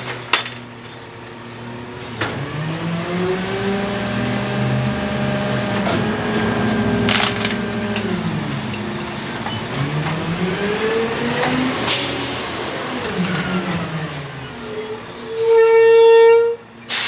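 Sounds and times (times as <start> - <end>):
truck diesel engine running: 1.8 - 13.8.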